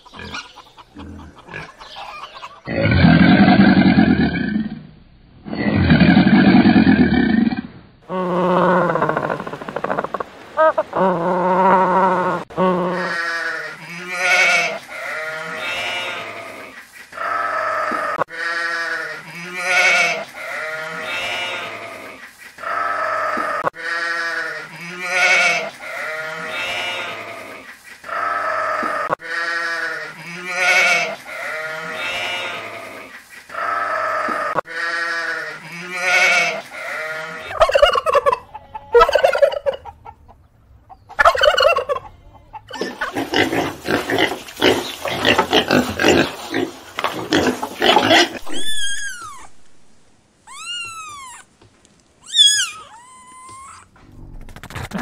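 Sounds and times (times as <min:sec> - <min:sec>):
sheep bleating: 0:12.8 - 0:16.7, 0:17.3 - 0:22.1, 0:22.7 - 0:27.4, 0:29.1 - 0:33.0, 0:33.6 - 0:37.5.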